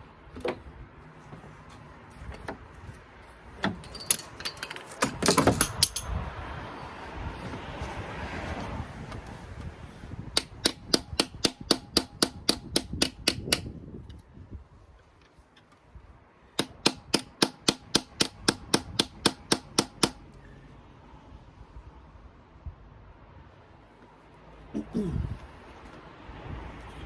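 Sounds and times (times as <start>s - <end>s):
hammer tapping on metal: 10.4s - 13.7s, 16.6s - 20.2s.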